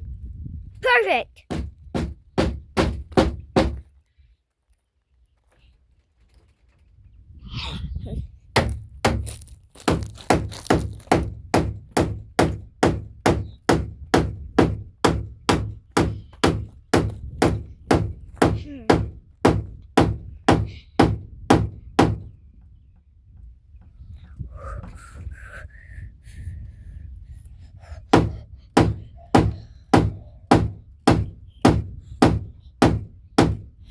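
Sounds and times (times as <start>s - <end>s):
hammer striking wood: 1.5s - 3.8s, 8.6s - 9.3s, 9.9s - 22.3s, 28.1s - 33.7s.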